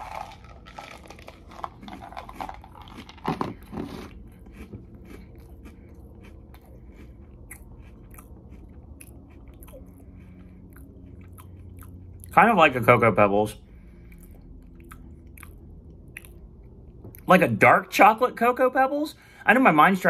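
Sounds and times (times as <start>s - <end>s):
person chewing crunchy cereal: 0.0s - 12.5s, 14.0s - 17.3s.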